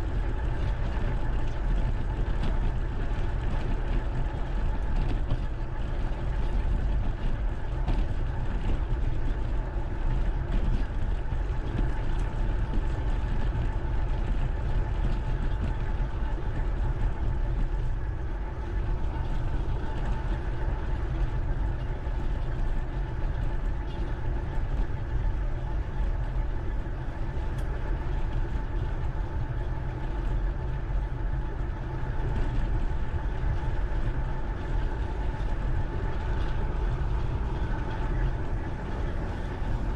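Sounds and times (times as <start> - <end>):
faint steady hum: 0.0 - 39.9
bike riding rumble: 32.2 - 39.9.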